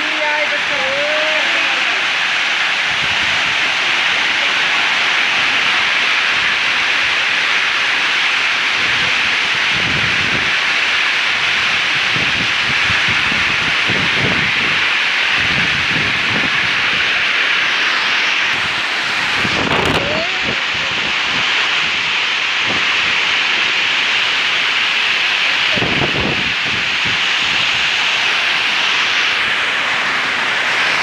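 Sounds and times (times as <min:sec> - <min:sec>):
heavy rain pouring: 0:00.0 - 0:31.0
wind buffeting microphone: 0:02.8 - 0:07.2, 0:08.8 - 0:10.7, 0:11.3 - 0:17.5, 0:18.3 - 0:23.7, 0:25.6 - 0:28.1.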